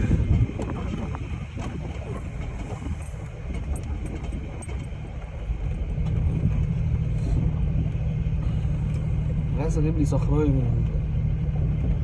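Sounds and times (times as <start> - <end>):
off-road vehicle engine rumble: 0.0 - 12.0.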